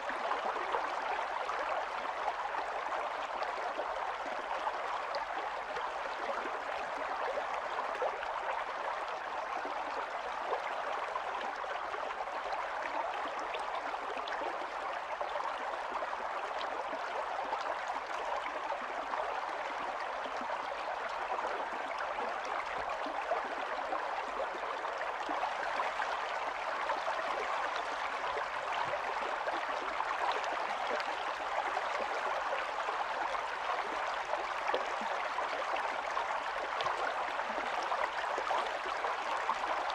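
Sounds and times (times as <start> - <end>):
stream flowing over stones: 20.6 - 39.9.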